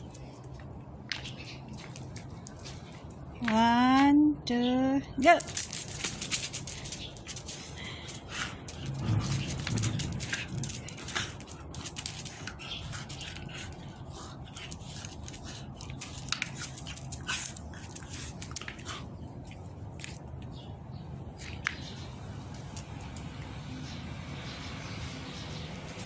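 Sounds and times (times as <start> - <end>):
dog claws clicking and tapping: 0.0 - 3.7, 5.2 - 20.6, 22.5 - 23.4, 25.7 - 26.0
steady low hum: 0.0 - 26.0.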